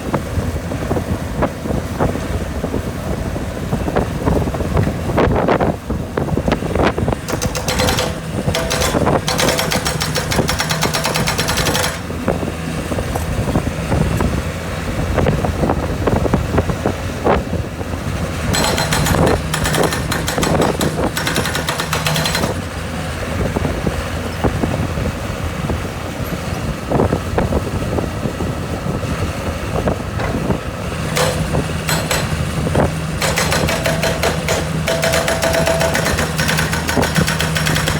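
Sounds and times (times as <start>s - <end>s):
skid steer engine running: 0.0s - 37.9s
hydraulic breaker hammering concrete: 6.5s - 12.4s, 18.4s - 23.0s, 30.2s - 37.9s
scattered knocks: 7.3s - 12.1s, 18.5s - 22.6s, 31.1s - 37.9s.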